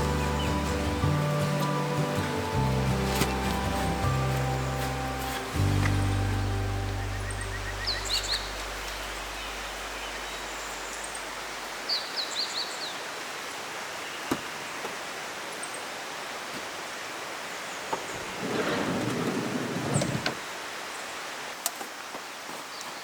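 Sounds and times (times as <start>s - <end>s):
rustling: 0.0s - 6.6s
background music: 0.0s - 11.2s
river rushing: 0.0s - 22.4s
small bird chirping: 3.2s - 11.3s.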